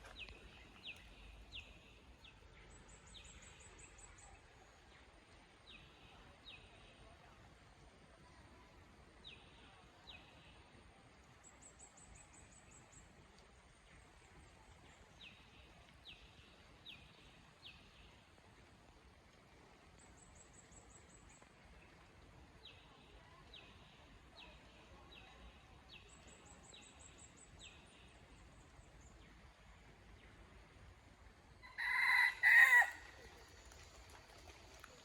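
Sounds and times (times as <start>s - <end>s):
cockerel crowing: 31.6s - 33.2s.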